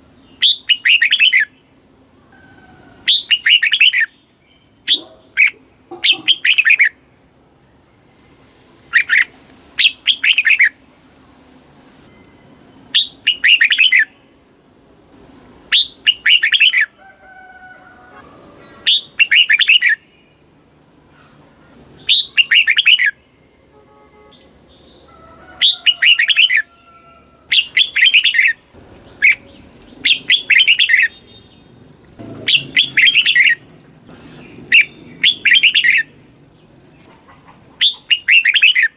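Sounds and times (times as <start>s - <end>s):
bird chirping phrases: 0.1s - 2.3s, 3.0s - 7.0s, 12.1s - 14.4s, 15.7s - 17.1s, 18.6s - 26.7s, 27.4s - 37.2s, 37.8s - 38.9s.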